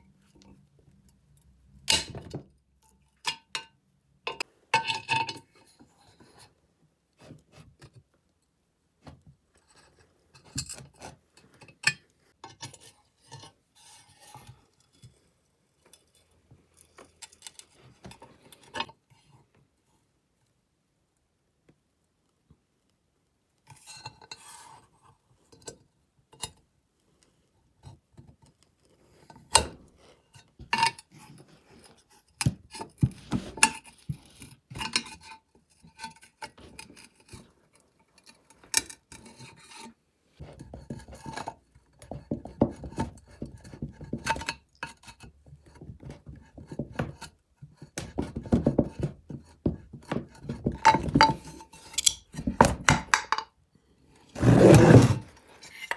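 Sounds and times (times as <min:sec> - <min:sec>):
metal scraping and rubbing: 0:54.4 - 0:55.9.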